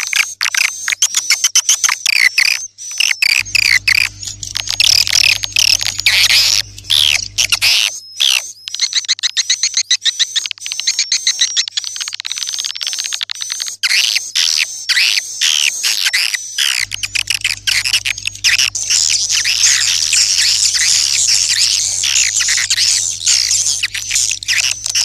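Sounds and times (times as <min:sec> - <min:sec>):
low hum: 0:03.4 - 0:07.7, 0:16.8 - 0:25.0
swiftlets twittering: 0:03.4 - 0:07.8, 0:16.6 - 0:25.0.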